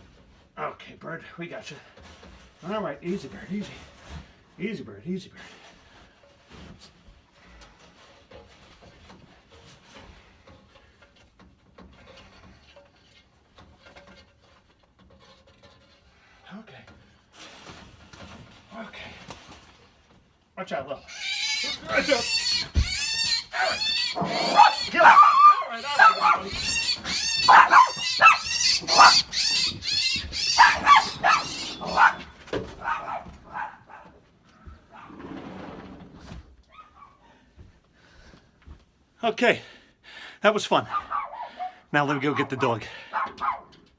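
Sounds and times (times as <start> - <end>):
bird squawking: 21.0 - 33.7
faint scuffling and rustling: 21.7 - 39.0.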